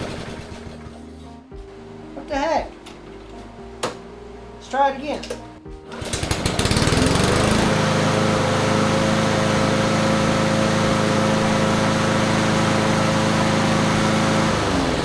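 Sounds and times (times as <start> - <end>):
lawn mower engine running: 0.0 - 1.0, 5.9 - 15.0.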